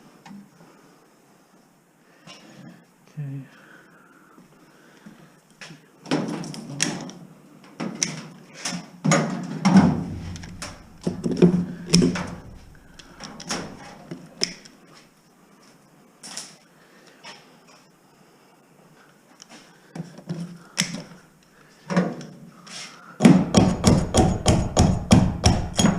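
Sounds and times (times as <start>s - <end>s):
demolition knocks and scrapes: 9.1s - 14.1s.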